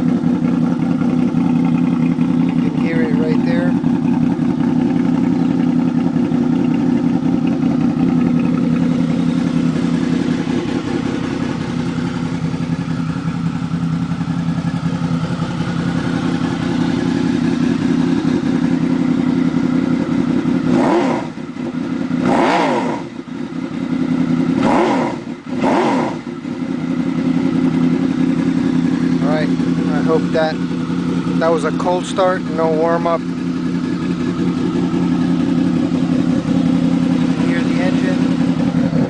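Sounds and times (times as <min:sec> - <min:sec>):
motorcycle engine idling: 0:00.0 - 0:39.0
engine revving: 0:20.5 - 0:23.3, 0:24.1 - 0:26.5, 0:35.4 - 0:39.0.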